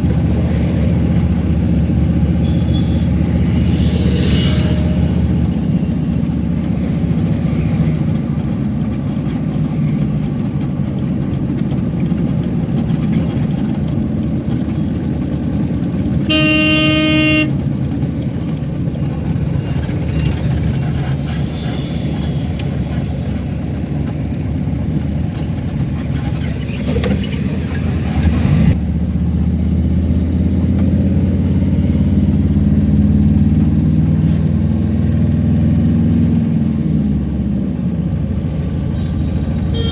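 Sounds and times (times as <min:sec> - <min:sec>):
car driving in traffic: 0:00.0 - 0:39.9
vehicle horn honking: 0:02.2 - 0:06.0, 0:16.3 - 0:18.0, 0:38.8 - 0:39.9.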